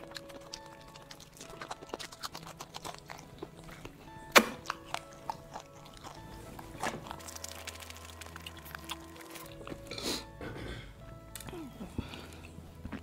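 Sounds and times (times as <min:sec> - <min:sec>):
man chewing crispy chicken: 0:00.0 - 0:10.3
background music: 0:00.0 - 0:13.0.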